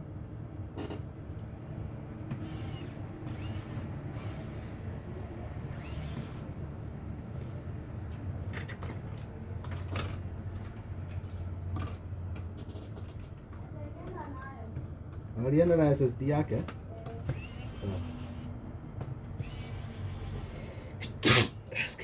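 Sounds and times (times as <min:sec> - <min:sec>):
sharp mechanical clicks: 0:02.3 - 0:04.5, 0:05.6 - 0:06.5, 0:17.2 - 0:18.5, 0:19.2 - 0:20.6.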